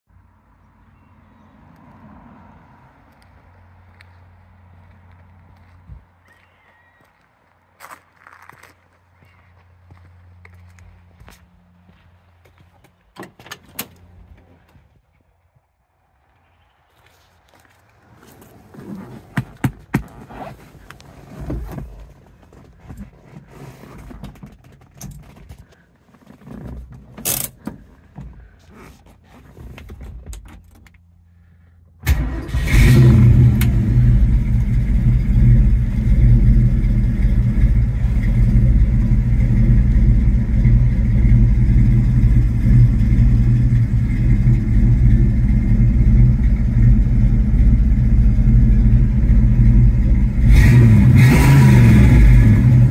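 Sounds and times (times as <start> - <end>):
car engine starting and idling: 29.8 - 52.9.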